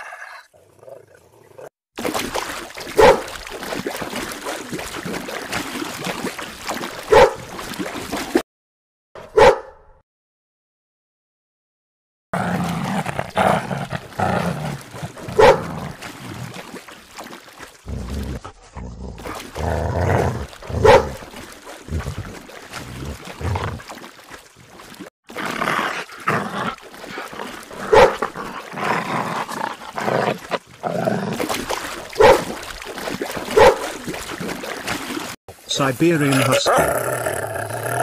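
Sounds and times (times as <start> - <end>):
dogs barking and growling: 2.8 - 3.4, 7.0 - 7.5, 9.2 - 9.7, 12.4 - 16.2, 17.8 - 23.9, 25.3 - 34.6.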